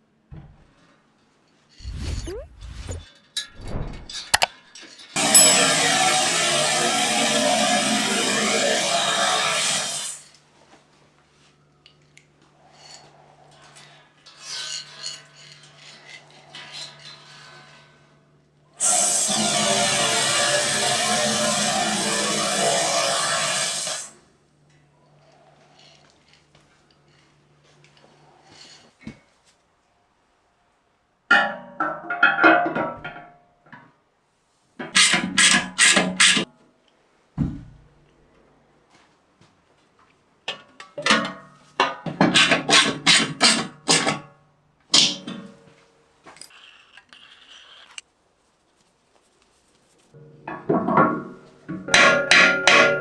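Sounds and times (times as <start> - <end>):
hand scraping and rubbing: 1.8 - 4.5, 46.4 - 50.2.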